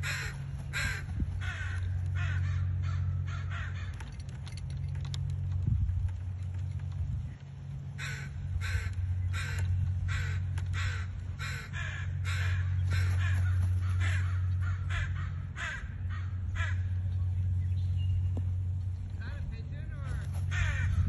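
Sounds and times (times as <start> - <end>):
harsh caw-like bird calls: 0.0 - 4.3, 7.9 - 17.2, 20.1 - 21.0
steady low rumble: 0.0 - 21.0.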